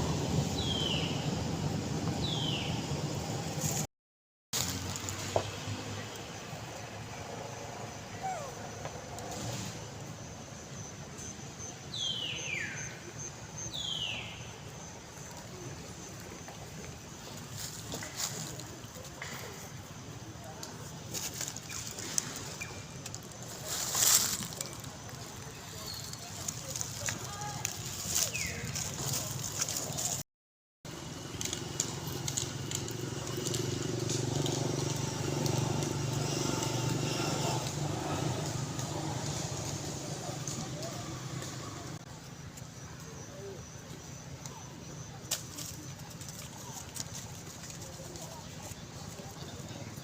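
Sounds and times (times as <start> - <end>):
vehicle engine hum: 30.9 - 42.6.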